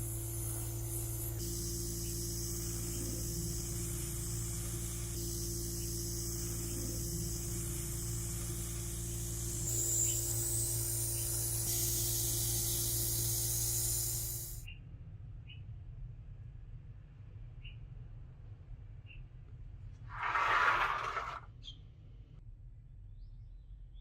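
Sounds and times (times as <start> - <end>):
low machine hum: 0.0 - 14.6.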